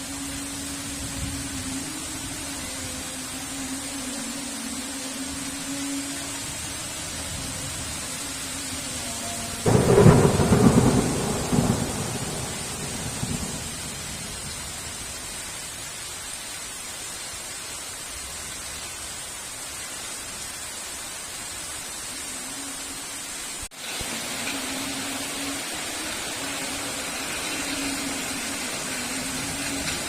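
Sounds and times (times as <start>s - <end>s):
heavy rain: 0.0s - 30.0s
thunder clap and rumble: 9.7s - 14.7s.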